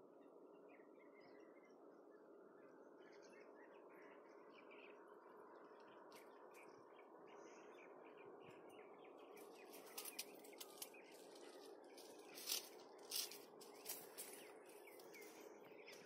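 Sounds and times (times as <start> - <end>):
small birds chirping: 0.0 - 16.0
rustling: 9.8 - 15.4.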